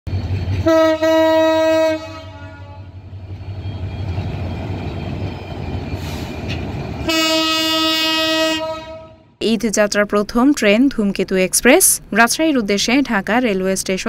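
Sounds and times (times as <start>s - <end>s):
moving train rumble: 0.1s - 14.0s
train horn: 0.6s - 3.0s, 7.0s - 9.4s.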